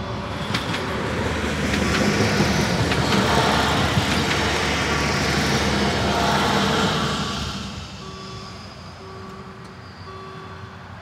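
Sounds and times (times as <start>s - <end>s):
train wheels rumbling: 0.0s - 10.1s
wheels clacking over rail joints: 0.4s - 6.2s
crossing warning bell ringing: 7.9s - 10.8s.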